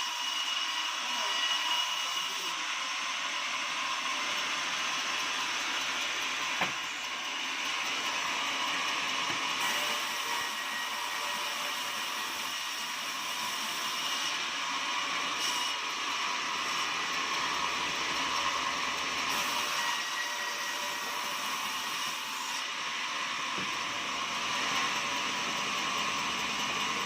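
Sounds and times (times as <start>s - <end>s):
sawmill whining: 0.0s - 27.0s.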